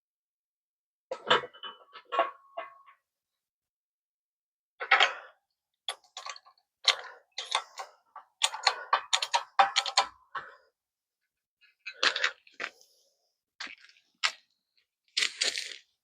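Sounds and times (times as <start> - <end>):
metal tool clicks and knocks: 5.9 - 10.4.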